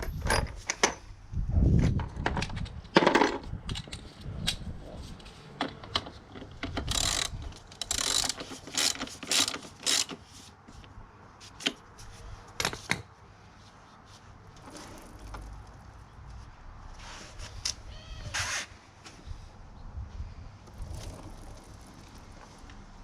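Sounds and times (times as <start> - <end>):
metal tools clinking: 6.8 - 10.2
ratchet wrench clicking: 6.8 - 10.2.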